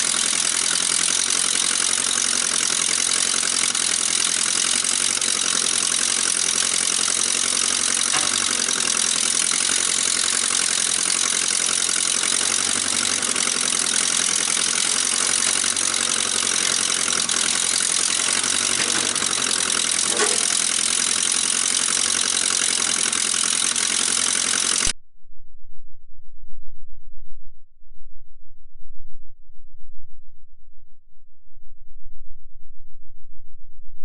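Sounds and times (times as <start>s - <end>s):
tractor engine running: 0.0s - 24.9s.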